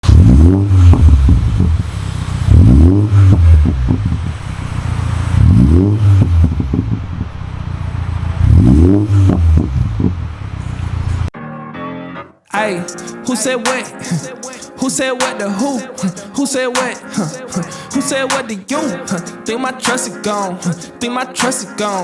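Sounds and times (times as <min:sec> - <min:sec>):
car engine revving: 0:00.0 - 0:11.3
exhaust crackles: 0:00.0 - 0:11.3.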